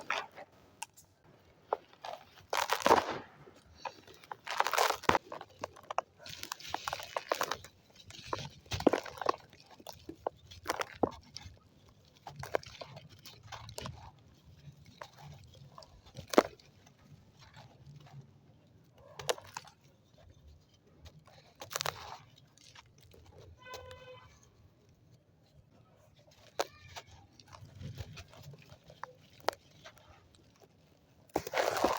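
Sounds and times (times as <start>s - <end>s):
dry sand crumbling and crackling: 0.0s - 31.9s.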